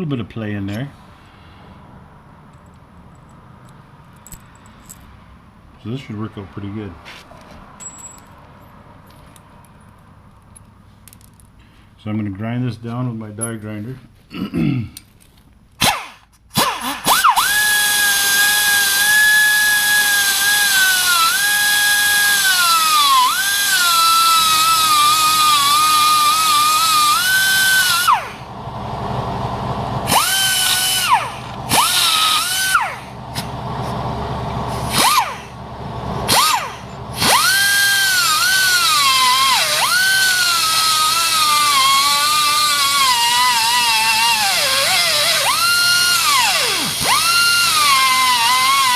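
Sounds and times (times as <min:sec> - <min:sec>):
die grinder whining: 0:15.8 - 0:48.9.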